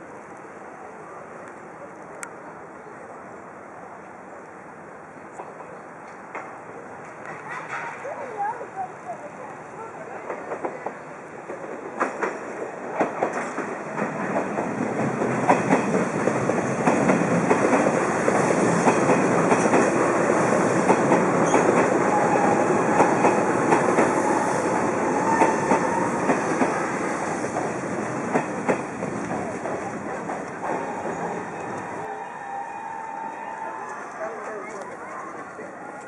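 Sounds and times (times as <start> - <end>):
train wheels clattering over rail joints: 6.3 - 8.1, 11.5 - 31.9.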